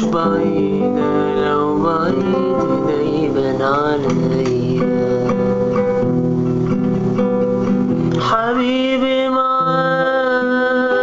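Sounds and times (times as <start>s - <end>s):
strummed string accompaniment: 0.0s - 11.0s
man singing a long held note: 8.2s - 11.0s.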